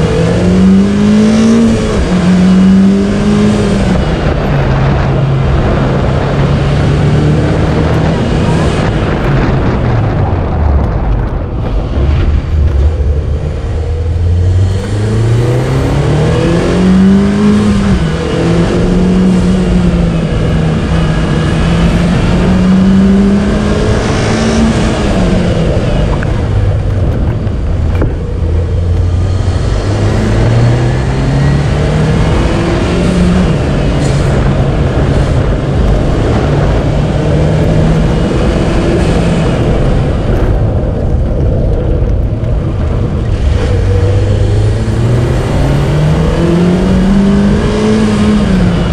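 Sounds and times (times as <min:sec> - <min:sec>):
car engine revving: 0:00.0 - 0:48.9
tyre and road noise: 0:00.0 - 0:48.9.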